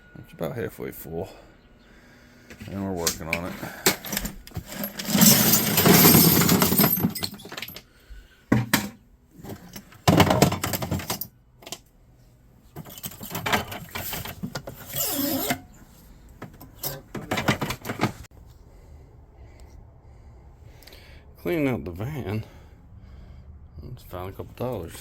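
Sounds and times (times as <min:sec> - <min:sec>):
scrap metal clattering: 0:02.6 - 0:07.8, 0:08.5 - 0:11.3, 0:12.8 - 0:18.3.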